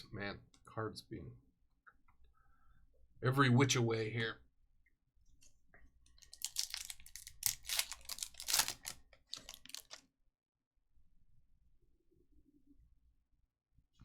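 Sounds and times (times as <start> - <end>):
trading cards clicking and rustling: 6.3 - 10.0.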